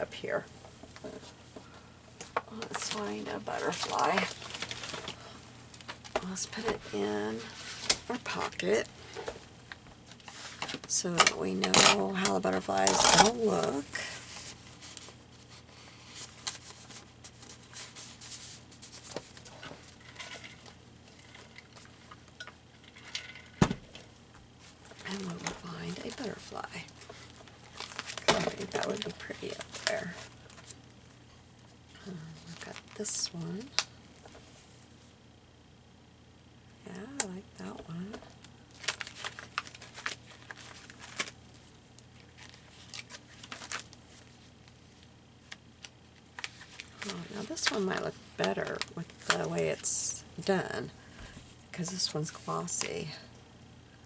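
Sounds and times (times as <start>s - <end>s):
faint steady hum: 0.0s - 54.0s
paper rustling and crinkling: 2.2s - 11.0s, 11.9s - 31.7s, 32.4s - 33.3s, 38.7s - 49.9s.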